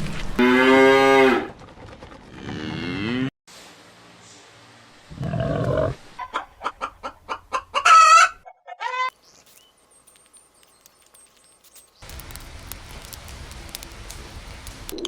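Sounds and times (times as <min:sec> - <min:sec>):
low cow moo: 0:00.4 - 0:01.5
chickens clucking: 0:06.1 - 0:09.1
chicken squawk: 0:06.2 - 0:09.1.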